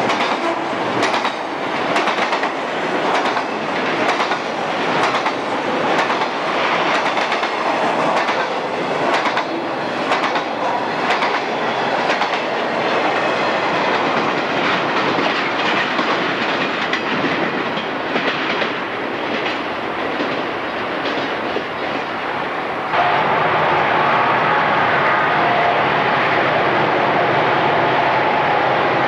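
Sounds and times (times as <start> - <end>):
steel wheels clacking over rail joints: 0.0 - 22.2.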